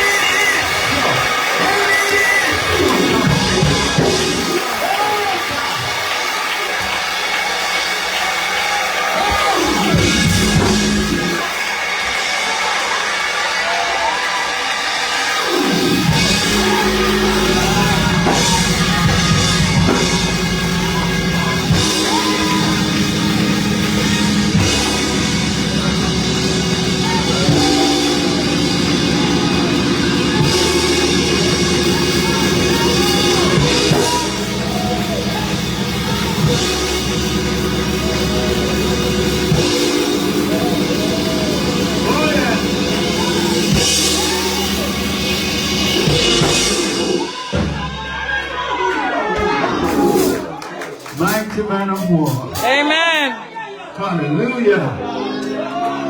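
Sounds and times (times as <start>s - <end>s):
drum kit: 0.0s - 53.3s
held band chords: 9.6s - 11.6s, 15.5s - 48.1s, 55.0s - 56.0s.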